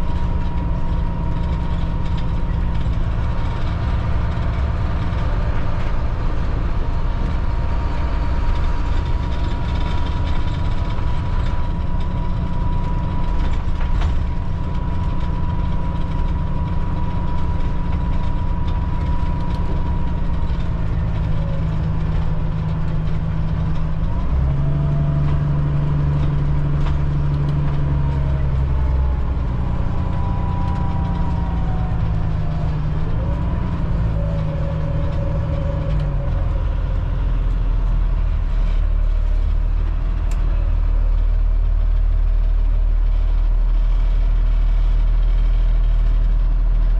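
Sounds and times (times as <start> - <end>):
bus diesel engine droning: 0.0 - 46.9.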